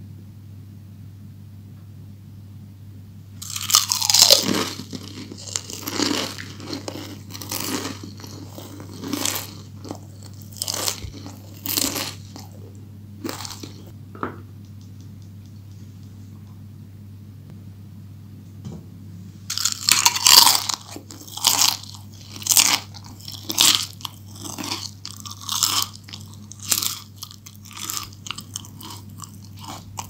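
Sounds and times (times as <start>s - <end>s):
low steady hum: 0.0s - 30.0s
crunchy chewing: 3.4s - 14.0s, 19.5s - 30.0s.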